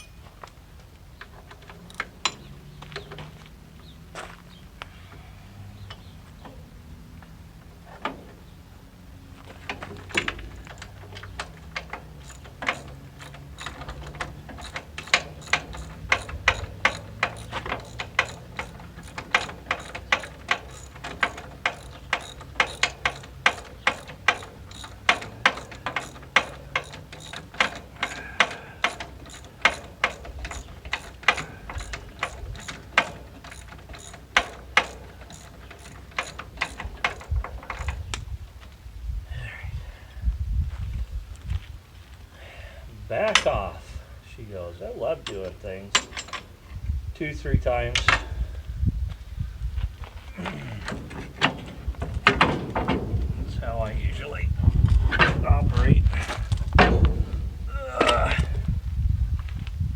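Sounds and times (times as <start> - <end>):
ratchet wrench clicking: 10.1 - 38.0.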